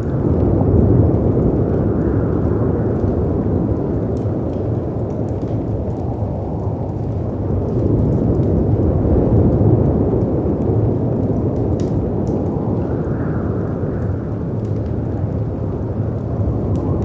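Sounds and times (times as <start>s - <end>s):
faint fireplace crackling: 0.0s - 17.0s
wind rumble: 0.0s - 17.0s.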